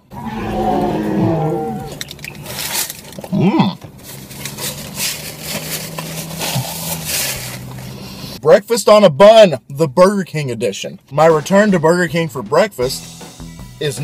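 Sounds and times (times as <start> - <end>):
man humming mmm: 3.3 - 3.8
paper napkin rubbing: 4.6 - 8.2.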